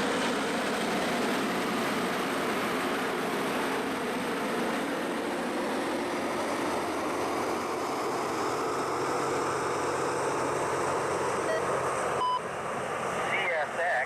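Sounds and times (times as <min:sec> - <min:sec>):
diesel engines rumbling: 0:00.0 - 0:14.0.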